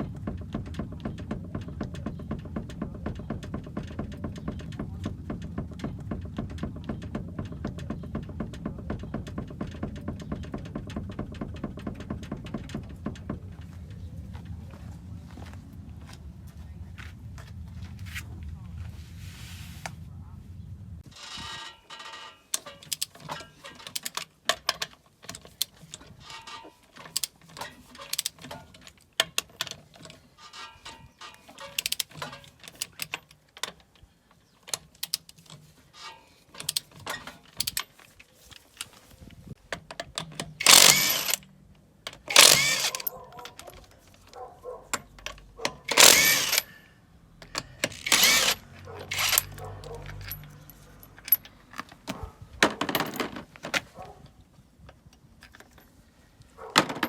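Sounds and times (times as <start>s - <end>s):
metal tools clinking and knocking: 21.0s - 46.8s, 47.4s - 54.1s, 54.8s - 57.0s
small irregular clicks: 39.5s - 46.7s.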